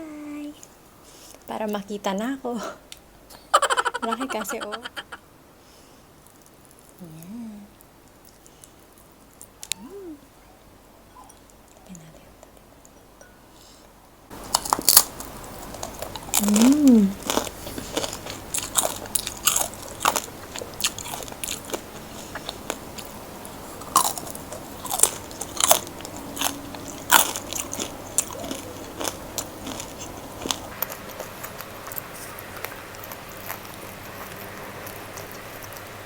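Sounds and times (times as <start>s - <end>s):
soft chewing: 3.3s - 36.0s
crunching fried chicken: 14.3s - 36.0s.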